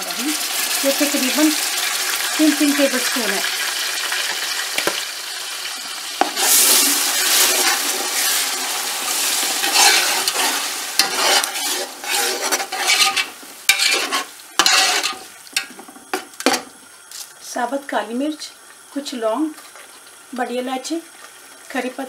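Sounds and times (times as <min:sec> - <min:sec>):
paste sizzling in hot oil: 0:00.0 - 0:17.4
metal spoon scraping pot: 0:09.6 - 0:15.2.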